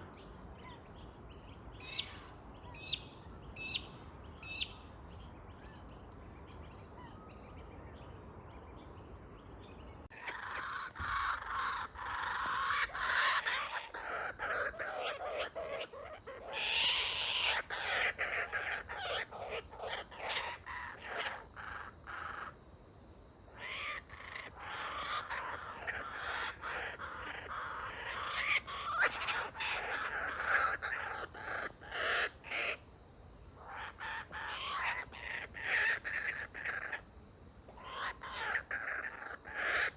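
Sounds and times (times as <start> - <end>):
kookaburras laughing calls: 10.1 - 22.6, 23.6 - 32.8, 33.6 - 37.1, 37.8 - 39.9.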